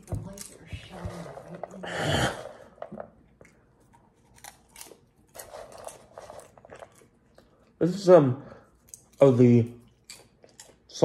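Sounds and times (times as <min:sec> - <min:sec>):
person chewing crunchy popcorn: 0:02.2 - 0:07.8, 0:08.6 - 0:11.0.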